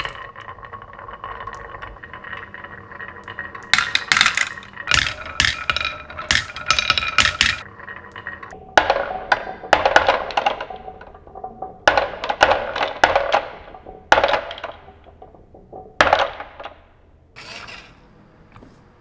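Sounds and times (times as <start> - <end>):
toy pieces clacking together: 3.6 - 7.7.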